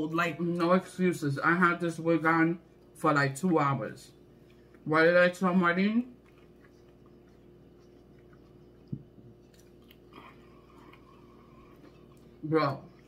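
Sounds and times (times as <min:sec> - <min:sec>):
closed-mouth chewing: 0:06.0 - 0:13.0.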